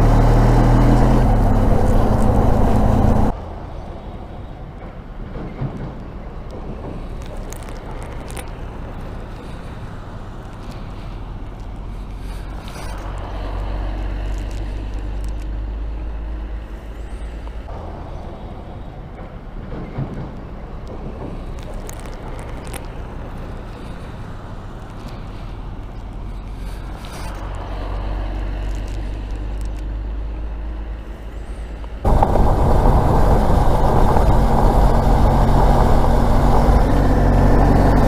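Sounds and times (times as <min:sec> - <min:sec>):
motorcycle engine hum: 0:00.0 - 0:03.4, 0:21.0 - 0:38.0
wind on microphone: 0:32.0 - 0:38.0.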